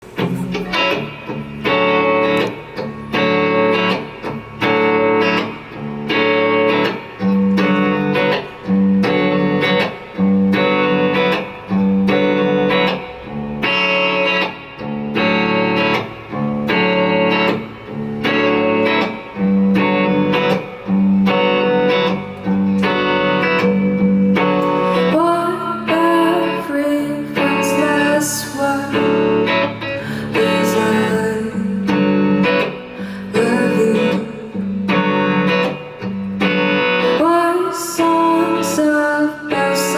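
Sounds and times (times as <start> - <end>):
live band playing: 0.0 - 13.2
guitar chords strummed: 0.0 - 39.9.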